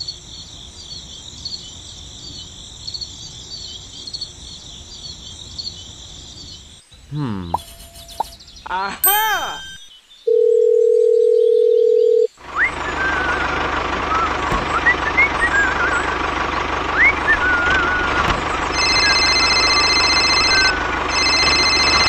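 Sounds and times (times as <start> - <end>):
birds chirping: 0.0 - 10.7, 12.3 - 22.0
mobile phone ringtone: 9.6 - 12.3, 18.7 - 22.0
phone dial tone: 10.3 - 12.3, 18.7 - 22.0
tractor engine running: 12.4 - 22.0.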